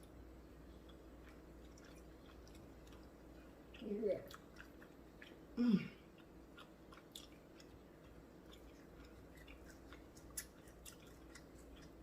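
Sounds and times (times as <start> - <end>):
low room hum: 0.0 - 12.0
chewing with wet mouth clicks: 0.8 - 12.0.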